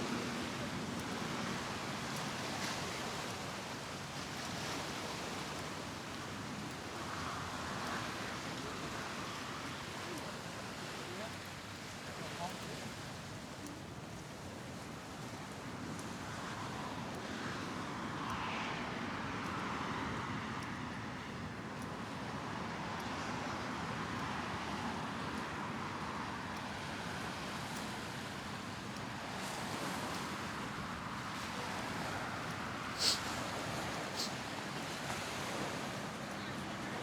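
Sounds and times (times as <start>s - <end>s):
road traffic passing: 31.6s - 36.9s.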